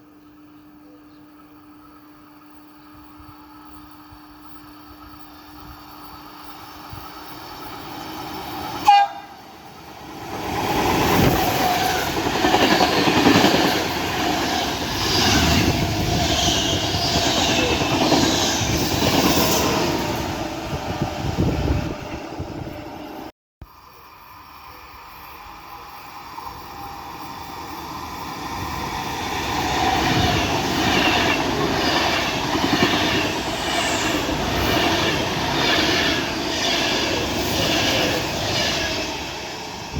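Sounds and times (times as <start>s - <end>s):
train horn blast: 8.8s - 9.4s
train wheels clickety-clack: 10.2s - 20.0s, 26.7s - 39.6s.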